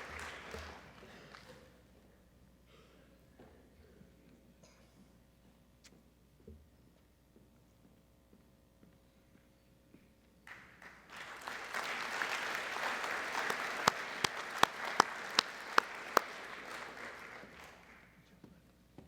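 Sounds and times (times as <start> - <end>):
audience applauding: 0.0 - 1.5, 10.5 - 18.2
loud sharp close claps: 0.0 - 1.5, 10.5 - 18.1.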